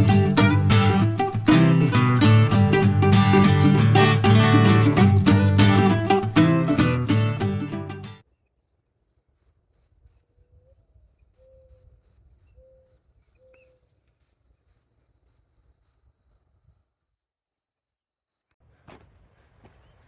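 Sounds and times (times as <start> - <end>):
cricket chirping: 8.2 - 18.6.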